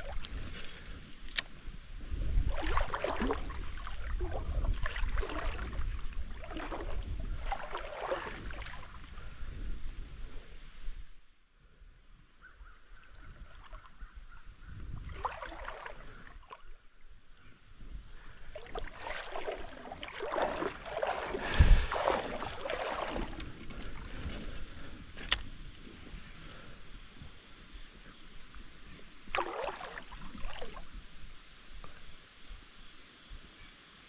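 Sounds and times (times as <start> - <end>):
river water sloshing and splashing: 0.0 - 10.1, 14.9 - 16.8, 18.1 - 26.4, 28.5 - 31.6.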